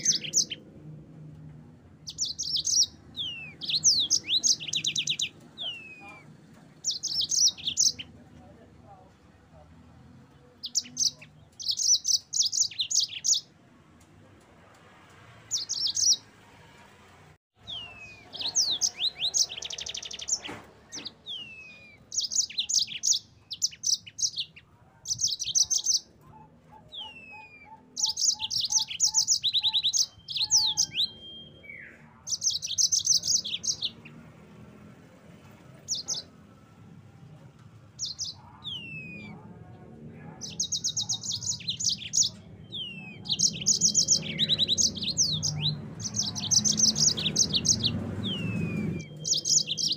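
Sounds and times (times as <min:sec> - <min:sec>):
finch singing high trills: 0:00.0 - 0:00.6, 0:02.0 - 0:08.2, 0:10.6 - 0:13.5, 0:17.6 - 0:34.1, 0:40.4 - 0:49.9.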